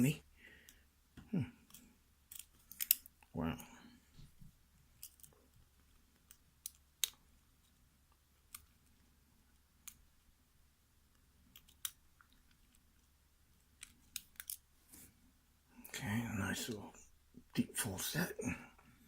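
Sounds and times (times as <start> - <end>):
lock pick clicking in lock: 1.7 - 3.1.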